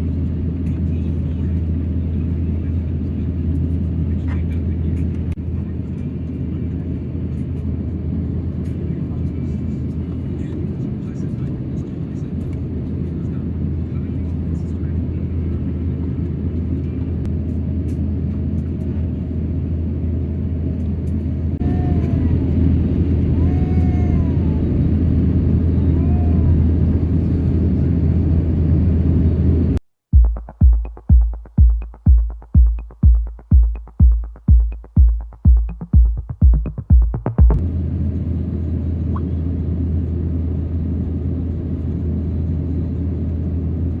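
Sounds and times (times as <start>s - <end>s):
airplane cabin rumble: 0.0s - 44.0s
electronic music with bass beat: 30.1s - 37.6s.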